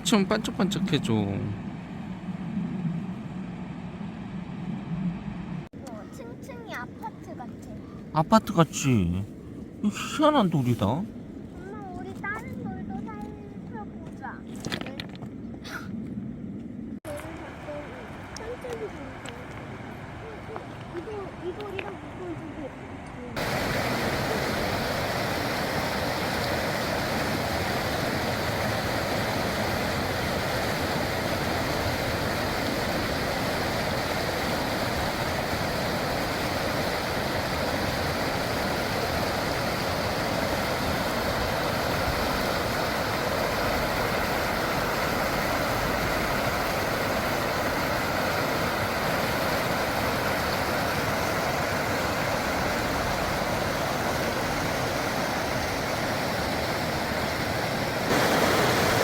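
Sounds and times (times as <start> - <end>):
flowing river water: 17.1 - 59.0.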